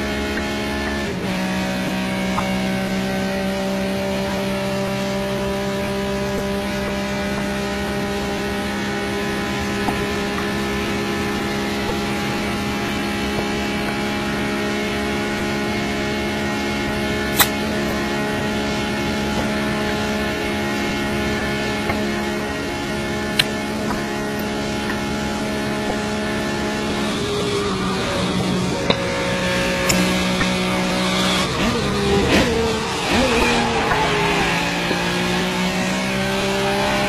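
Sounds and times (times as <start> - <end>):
car engine at high revs: 0.0 - 37.0
sharp click: 17.3 - 17.6.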